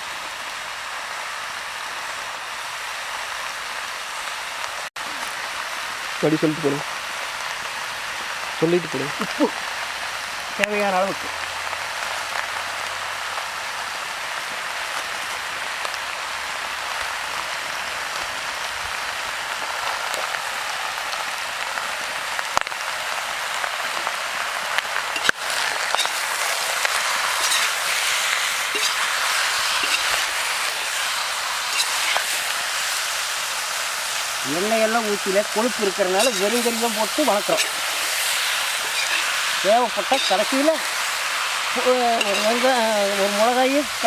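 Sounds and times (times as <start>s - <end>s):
curry sizzling in a pot: 0.0s - 44.0s.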